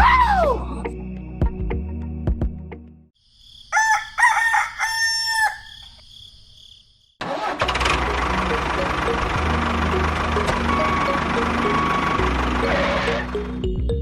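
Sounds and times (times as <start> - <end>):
rooster crowing: 3.7 - 6.0.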